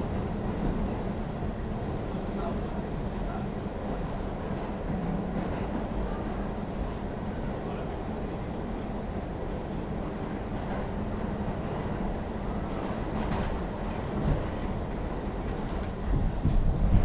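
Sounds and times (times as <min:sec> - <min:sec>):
subway wheels rumbling on track: 0:00.0 - 0:17.0.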